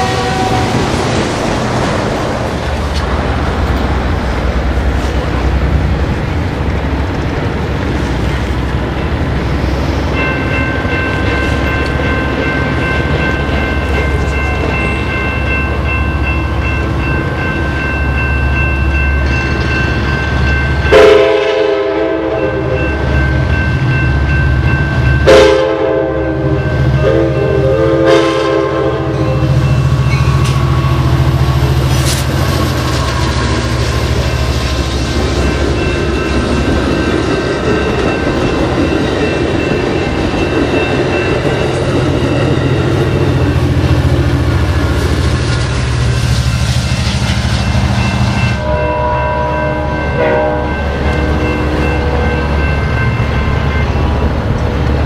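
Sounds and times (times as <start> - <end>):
train horn blasts: 0.0 - 1.0, 20.9 - 22.9, 25.2 - 29.6, 48.6 - 51.6
crossing warning bell: 0.0 - 55.0
train cars rumbling past: 0.0 - 55.0.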